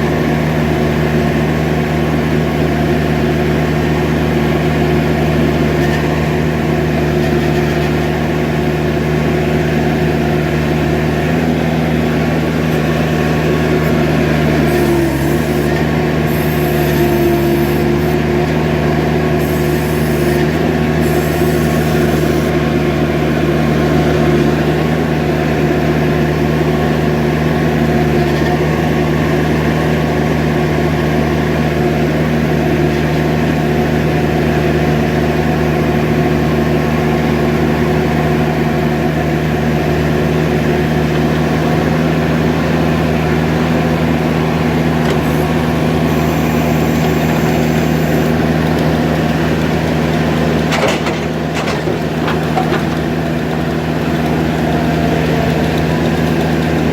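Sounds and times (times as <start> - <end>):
skid steer engine running: 0.0 - 56.9.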